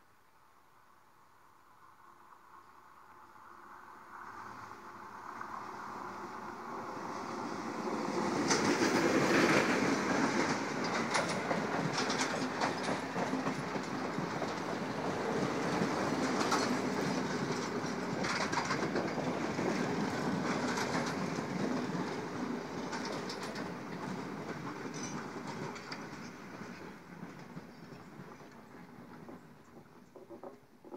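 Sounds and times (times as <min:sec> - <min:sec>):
wheel-on-rail rumble: 0:04.1 - 0:30.9
wheels clacking over rail joints: 0:08.1 - 0:30.9.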